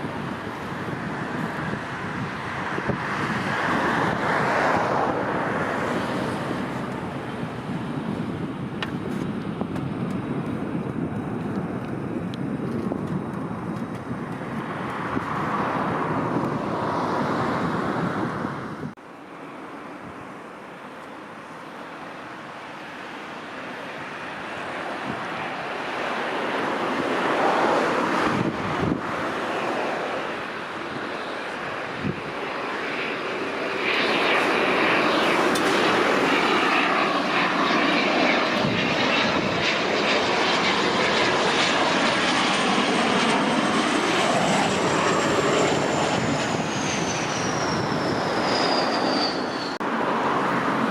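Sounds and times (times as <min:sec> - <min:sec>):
turboprop engines running: 0:00.0 - 0:16.8
jet trainer turbofans: 0:21.0 - 0:50.9.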